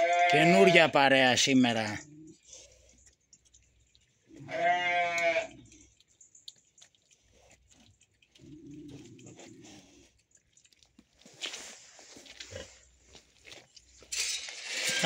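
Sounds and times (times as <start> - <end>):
farm animal bleating: 0.0 - 1.1, 4.3 - 5.7.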